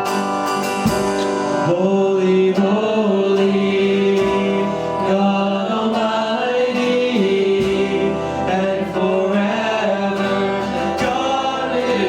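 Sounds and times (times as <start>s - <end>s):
guitar: 0.0s - 12.0s
worship band playing: 0.0s - 12.0s.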